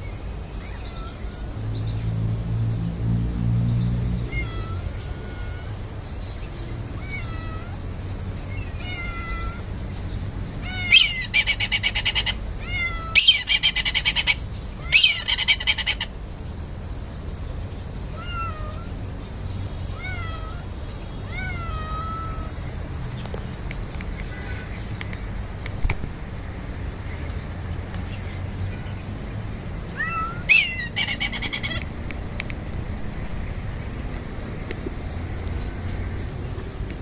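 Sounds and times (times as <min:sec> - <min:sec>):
cat meowing: 0:00.6 - 0:01.5, 0:04.2 - 0:05.8, 0:07.0 - 0:07.9, 0:08.6 - 0:09.7, 0:10.6 - 0:13.7, 0:18.1 - 0:19.0, 0:19.9 - 0:22.6, 0:29.9 - 0:31.8.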